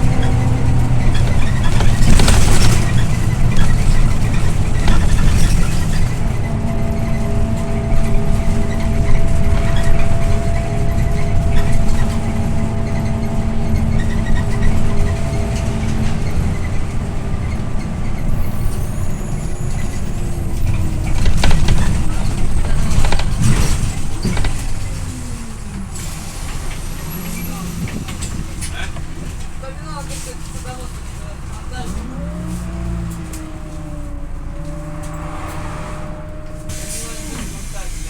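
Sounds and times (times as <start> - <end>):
knocks and rattles: 0.0 - 18.5, 19.6 - 26.8
bus engine and road rumble: 0.0 - 38.0
drivetrain whine: 0.0 - 38.0.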